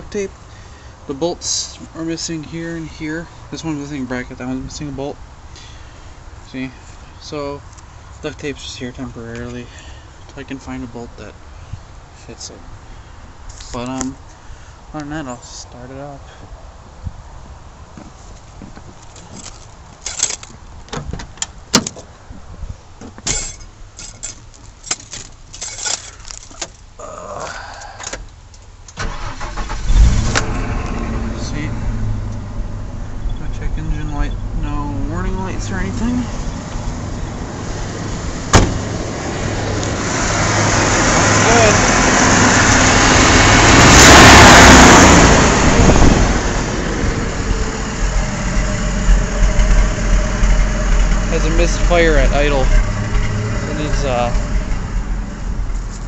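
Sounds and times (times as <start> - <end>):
clicks knocks and rattles in truck: 18.5 - 22.1, 23.0 - 26.8
truck engine revving and idling: 29.1 - 56.0.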